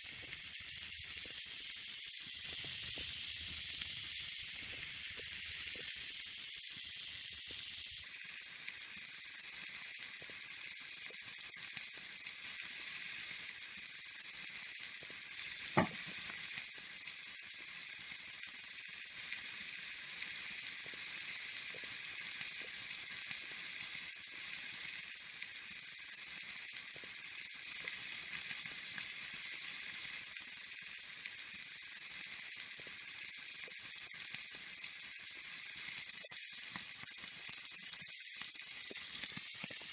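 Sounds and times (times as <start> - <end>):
meat sizzling with crackles: 0.0 - 39.9
sharp pop: 15.8 - 16.2.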